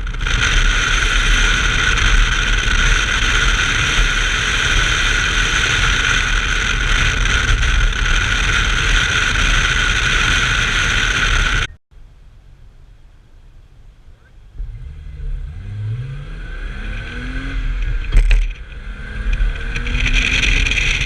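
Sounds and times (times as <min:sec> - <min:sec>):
car engine running hard: 0:00.0 - 0:11.8, 0:12.4 - 0:21.0
wind and road noise: 0:00.0 - 0:21.0.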